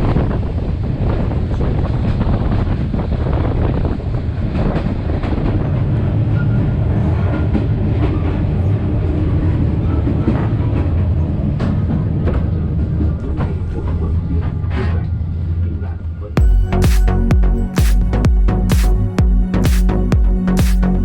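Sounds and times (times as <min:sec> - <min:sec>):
train wheels rumbling on rails: 0:00.0 - 0:15.1.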